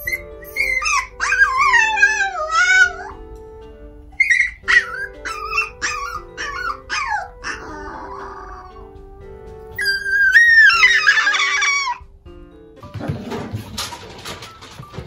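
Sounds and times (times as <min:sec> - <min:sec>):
small dog yelping: 0:00.0 - 0:03.2, 0:04.2 - 0:08.8, 0:09.8 - 0:12.0
dog whining: 0:00.0 - 0:12.2
soft background music: 0:00.0 - 0:15.0.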